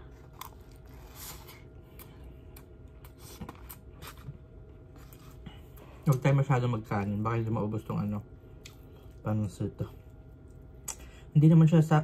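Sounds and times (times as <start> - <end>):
person chewing food: 0.0 - 6.2, 8.5 - 9.2.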